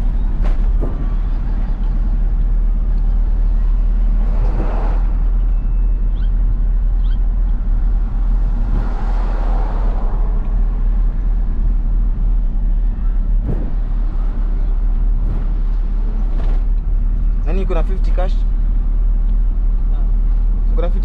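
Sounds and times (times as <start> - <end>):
diesel truck engine running: 0.0 - 21.0
tyre and road noise: 0.0 - 21.0.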